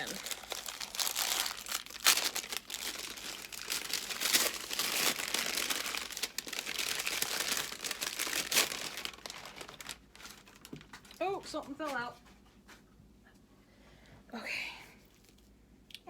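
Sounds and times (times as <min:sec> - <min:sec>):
sharp crackles: 0:00.0 - 0:10.0
packaging crinkling and rustling: 0:00.0 - 0:11.6.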